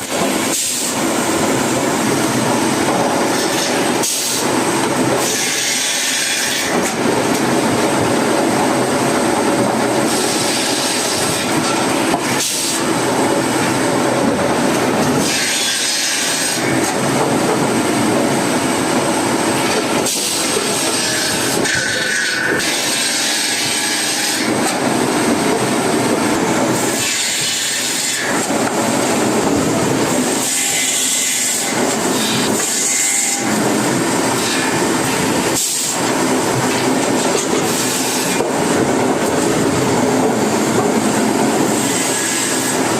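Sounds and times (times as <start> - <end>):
saw blade cutting wood: 3.3 - 4.5, 5.2 - 7.0, 10.0 - 12.8, 15.1 - 17.0, 20.0 - 24.8, 26.8 - 28.8, 30.2 - 33.6, 34.4 - 36.0, 41.7 - 42.9.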